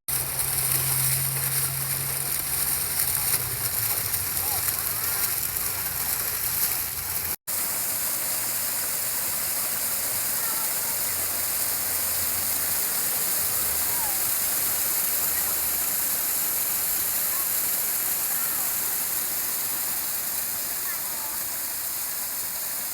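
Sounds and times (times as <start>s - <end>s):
water splashing in fountain: 0.1s - 22.9s.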